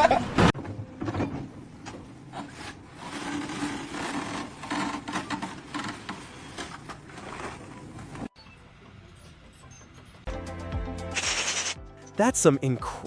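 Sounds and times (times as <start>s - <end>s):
hand tool scraping a surface: 2.4s - 7.7s.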